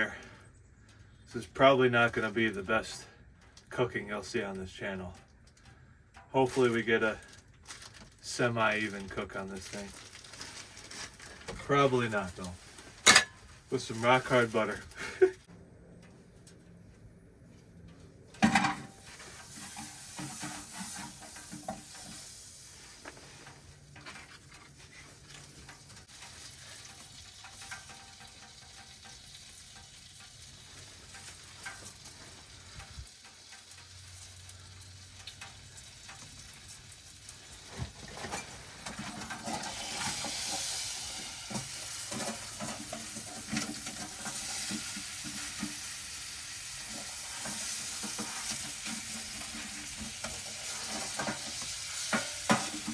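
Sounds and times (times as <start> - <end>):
steak sizzling in a pan: 19.0 - 23.4, 25.4 - 37.7, 39.4 - 52.9.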